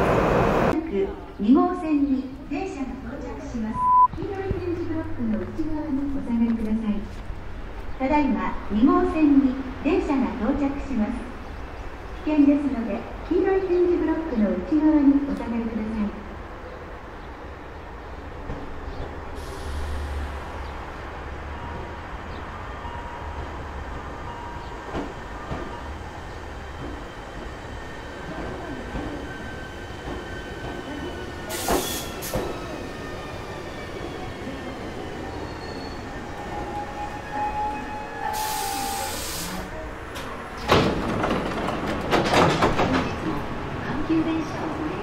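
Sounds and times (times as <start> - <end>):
wheels rumbling on rail: 0.0 - 0.8, 4.2 - 45.0
train clattering: 40.1 - 44.9.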